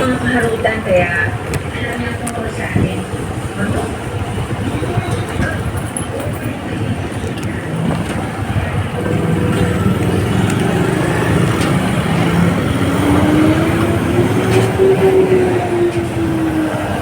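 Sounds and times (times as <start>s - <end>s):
wind and road noise: 0.0s - 17.0s
motorcycle engine running: 2.9s - 17.0s.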